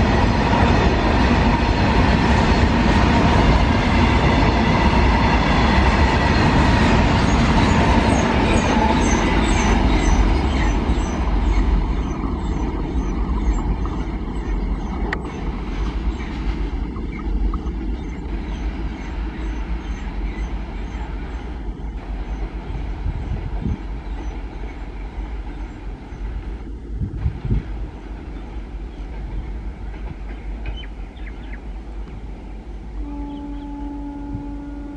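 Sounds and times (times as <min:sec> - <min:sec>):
freight train wagons rolling: 0:27.4 - 0:32.4.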